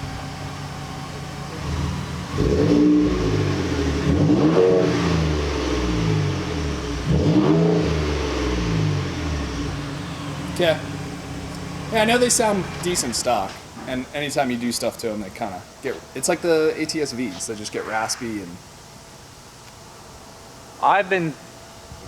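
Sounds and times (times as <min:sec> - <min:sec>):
truck engine idling and revving: 0:00.0 - 0:13.8.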